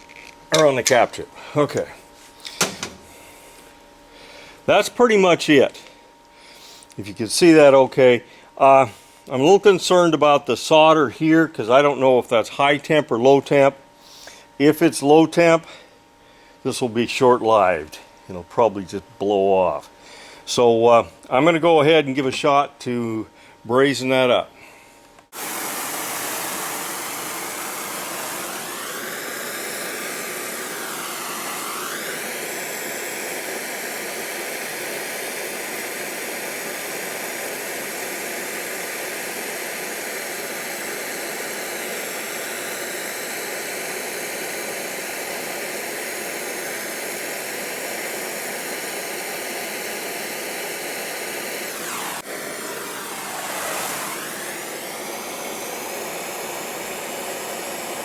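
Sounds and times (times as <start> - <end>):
torch flame hissing: 0.0 - 3.8, 25.3 - 58.0.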